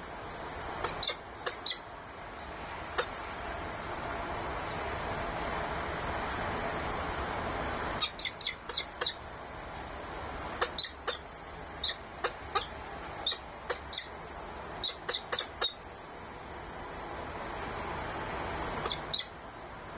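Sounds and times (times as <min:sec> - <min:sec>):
bird sharp downward calls: 0:08.0 - 0:09.2.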